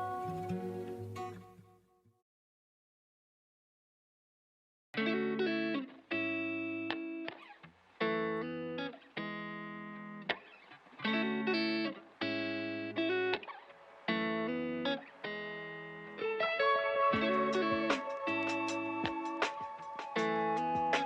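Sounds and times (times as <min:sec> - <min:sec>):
electric guitar chords: 0:00.0 - 0:01.4, 0:05.0 - 0:07.4, 0:08.0 - 0:21.0.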